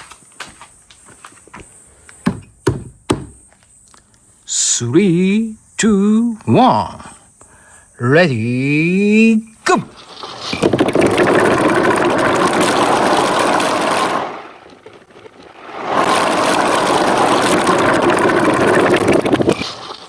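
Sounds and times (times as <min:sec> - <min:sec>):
marbles rattling down a track: 0:10.0 - 0:20.0.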